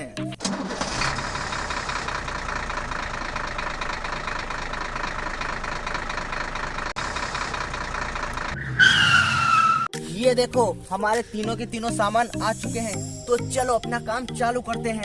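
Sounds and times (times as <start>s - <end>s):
engine idling: 0.3s - 8.7s.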